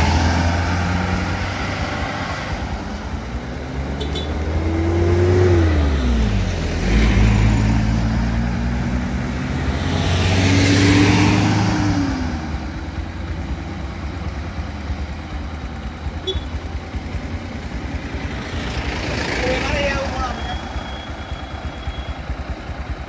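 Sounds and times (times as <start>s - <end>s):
cars driving past: 0.0s - 14.4s, 16.2s - 21.7s.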